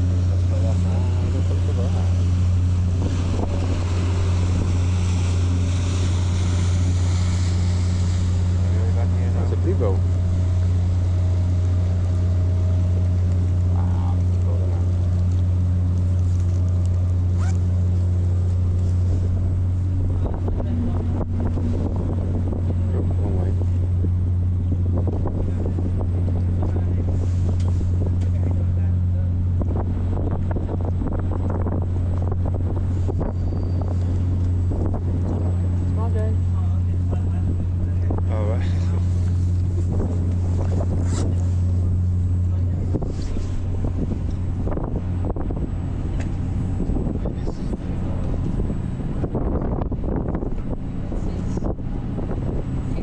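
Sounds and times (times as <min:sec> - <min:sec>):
ferry engine low hum: 0:00.0 - 0:53.0
water noise: 0:00.0 - 0:53.0
wind: 0:00.0 - 0:53.0.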